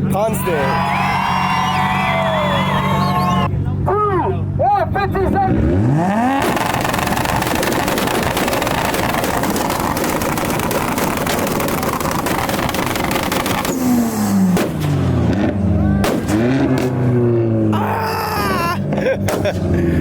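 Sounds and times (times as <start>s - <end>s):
car engine revving: 5.2s - 17.9s
exhaust pops and bangs: 6.4s - 17.2s, 18.9s - 19.8s.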